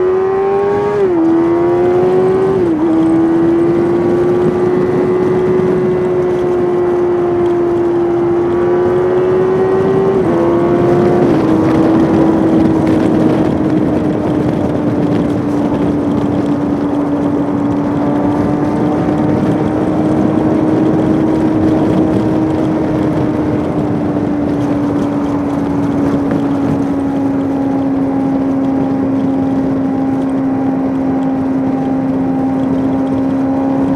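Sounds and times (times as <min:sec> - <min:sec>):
motorcycle engine running hard: 0:00.0 - 0:33.9
wind rush: 0:00.0 - 0:33.9.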